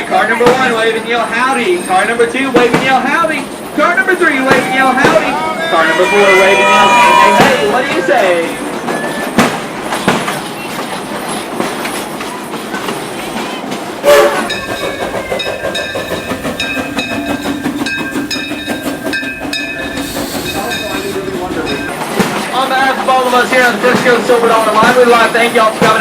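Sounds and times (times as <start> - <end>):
clickety-clack of wheels: 0.0 - 5.5, 7.4 - 26.0
train rolling on track: 0.0 - 26.0
high steady squealing tones: 4.2 - 9.4, 14.0 - 22.1.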